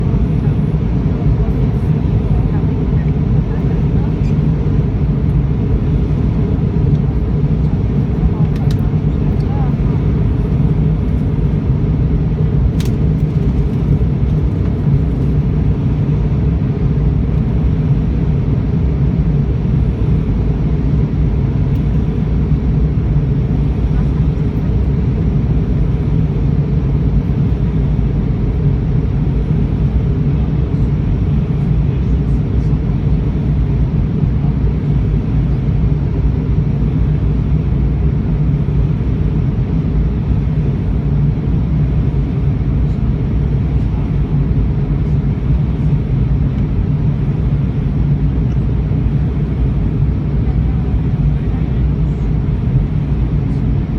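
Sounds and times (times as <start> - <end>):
aircraft cabin engine roar: 0.0 - 53.9
airflow over fuselage: 0.0 - 53.9
faint click: 12.8 - 13.0.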